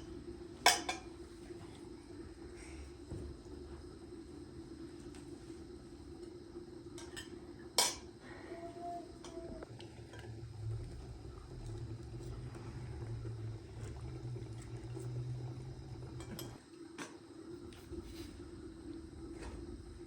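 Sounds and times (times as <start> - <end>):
steady low hum: 0.0 - 20.0
dishes and utensils clinking: 0.7 - 1.1, 16.1 - 16.6.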